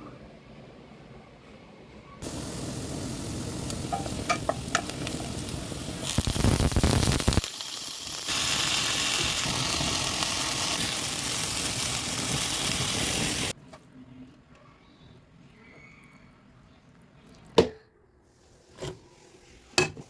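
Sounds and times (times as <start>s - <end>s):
food sizzling in a hot pan: 2.2s - 13.6s.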